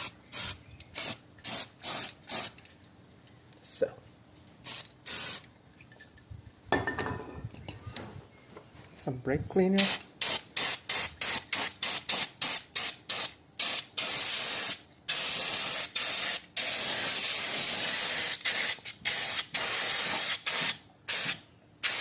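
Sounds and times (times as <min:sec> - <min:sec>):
aerosol can spraying: 0:09.8 - 0:22.0.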